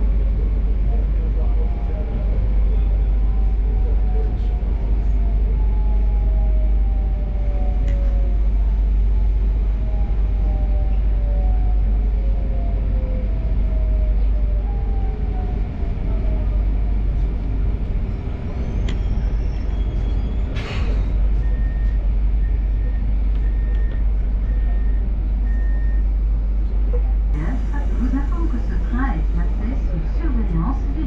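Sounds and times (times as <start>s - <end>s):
low rumble: 0.0s - 31.0s.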